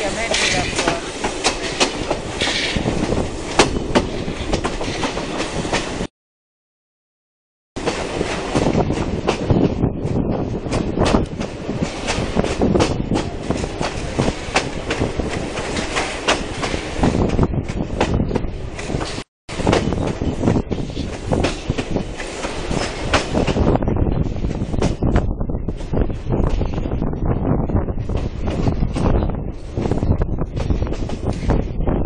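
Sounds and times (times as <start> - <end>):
wheels clicking over rail joints: 0.0 - 6.0, 7.8 - 25.2
train carriage rumbling: 0.0 - 6.1, 7.8 - 32.0.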